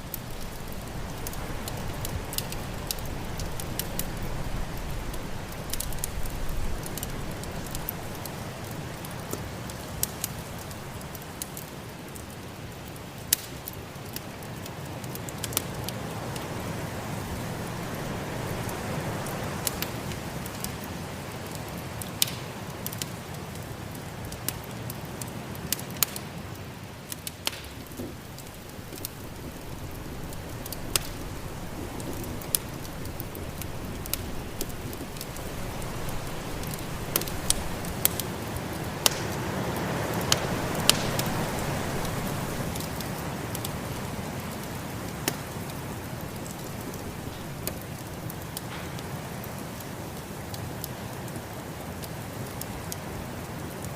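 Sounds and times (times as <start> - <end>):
wood fire crackling and popping: 0.0 - 53.9
snowstorm wind rushing: 28.0 - 44.2.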